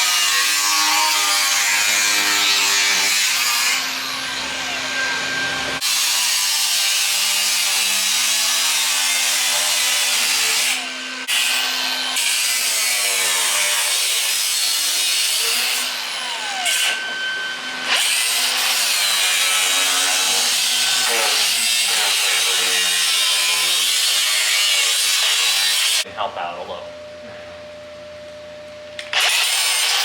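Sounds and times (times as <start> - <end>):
angle grinder cutting sheet metal: 0.0 - 26.1, 29.0 - 30.0.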